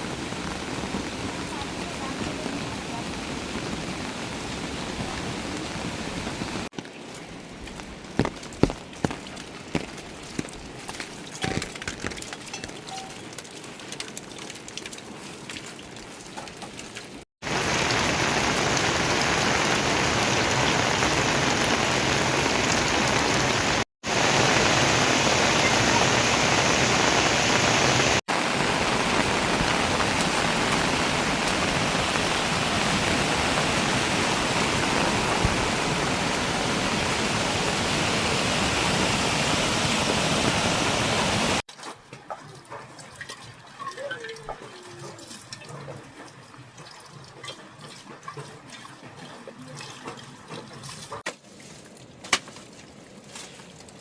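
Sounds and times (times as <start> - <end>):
heavy rain hissing: 0.0 - 6.7, 17.4 - 41.6.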